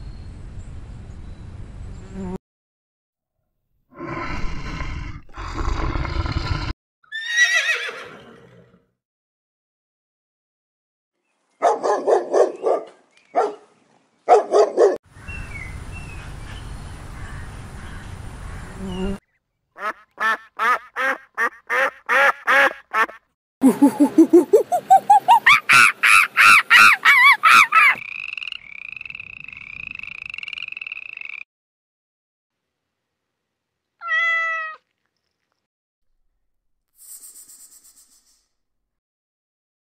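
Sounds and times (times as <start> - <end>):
dog barking: 11.6 - 13.7, 14.3 - 15.0
animal calls: 23.0 - 28.0.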